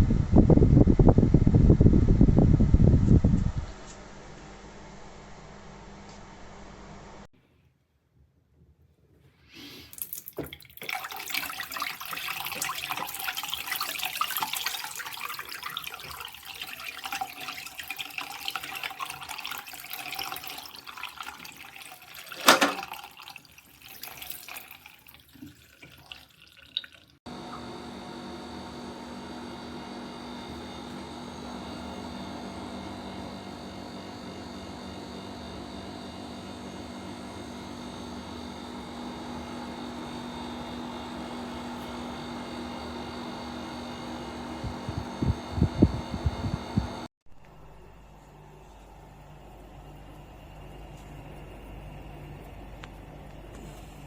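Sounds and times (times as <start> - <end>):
water splashing into a sink: 9.9 - 27.2
dehumidifier humming: 10.9 - 24.8, 27.3 - 54.0.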